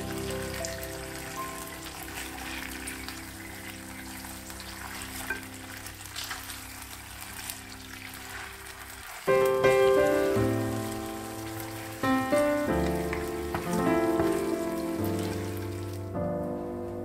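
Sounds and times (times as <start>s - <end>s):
patties sizzling in sauce: 0.0s - 16.2s.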